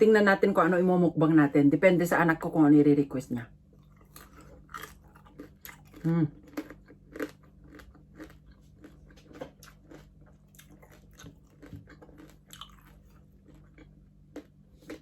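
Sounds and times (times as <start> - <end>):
chewing crispy pork skin: 3.7 - 15.0.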